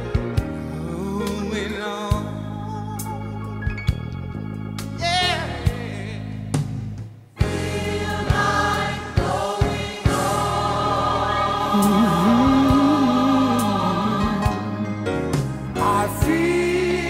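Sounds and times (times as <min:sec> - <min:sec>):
gospel choir singing: 0:07.4 - 0:17.0.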